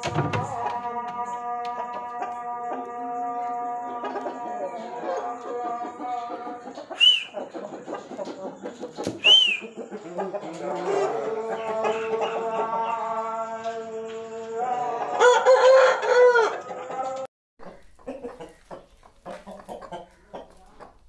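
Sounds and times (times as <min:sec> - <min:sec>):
rooster crowing: 0:00.0 - 0:07.3, 0:10.4 - 0:17.3
short sharp chirps: 0:07.0 - 0:07.4, 0:09.2 - 0:09.7.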